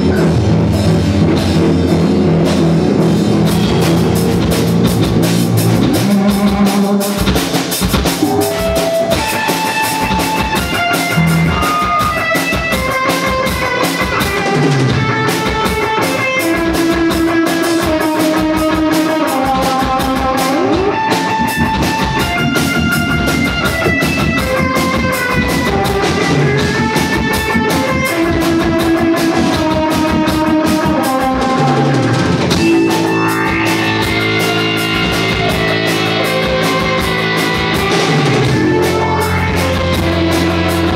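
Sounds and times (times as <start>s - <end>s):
drum kit beat: 0.0s - 40.9s
electric guitar melody: 0.0s - 40.9s.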